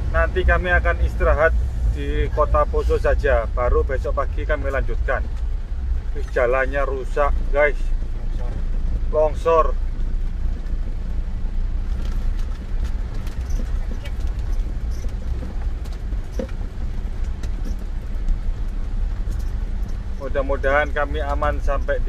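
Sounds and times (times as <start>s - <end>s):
engine and road rumble: 0.0s - 22.0s
small knocks and rattles: 11.8s - 21.9s.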